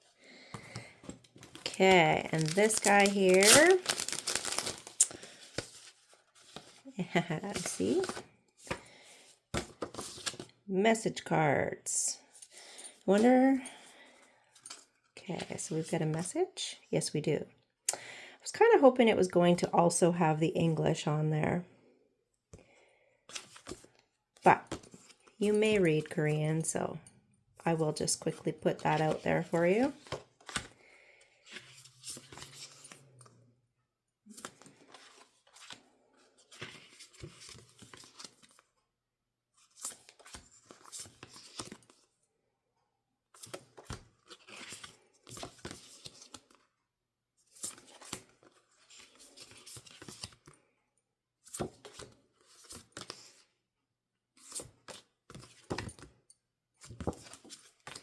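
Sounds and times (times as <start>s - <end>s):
packaging rustling and tearing: 1.4s - 6.8s.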